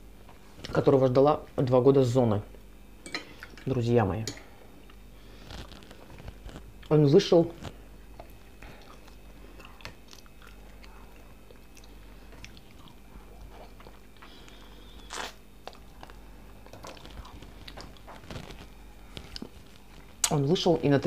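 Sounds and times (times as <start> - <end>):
wet chewing mouth sounds: 7.6 - 20.3.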